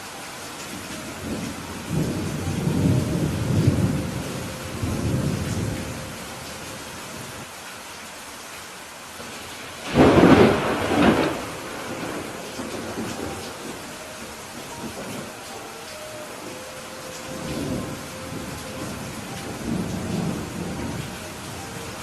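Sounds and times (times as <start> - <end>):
steady rain: 0.0 - 22.0
loud thunderclap: 9.8 - 13.7
rolling thunder rumble: 9.8 - 15.4, 17.3 - 22.0.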